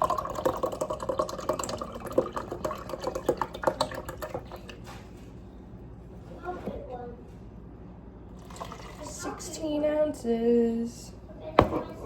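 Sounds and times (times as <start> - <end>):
juice pouring into a cup: 0.0 - 4.8, 8.4 - 9.3.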